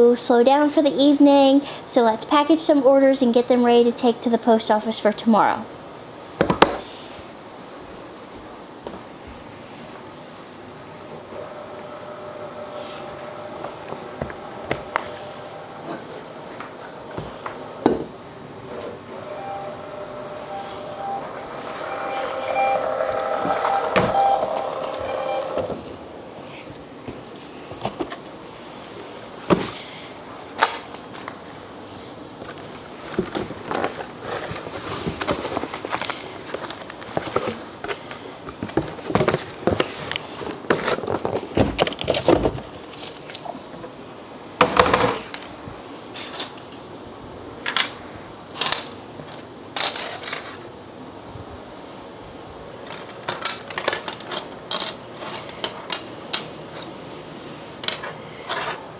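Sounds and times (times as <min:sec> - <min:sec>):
steady pitched hum: 0:10.9 - 0:26.2
packing materials rustling: 0:32.5 - 0:43.4.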